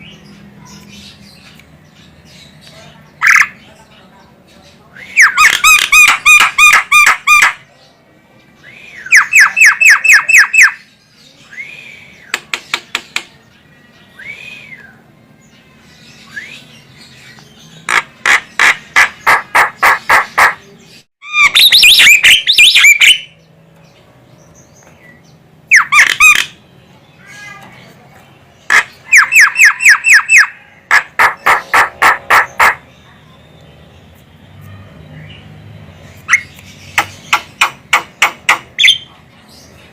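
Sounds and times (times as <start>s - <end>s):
myna harsh chattering calls: 3.2s - 3.7s, 17.8s - 23.2s, 28.6s - 33.0s.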